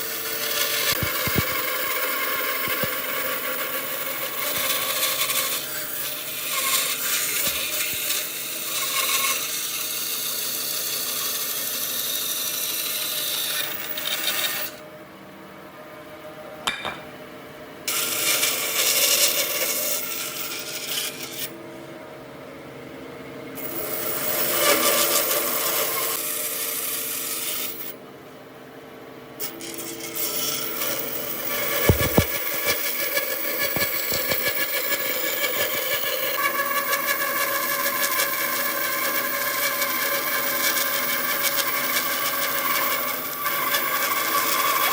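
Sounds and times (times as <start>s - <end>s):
rasp rubbing on wood: 31.6s - 36.2s.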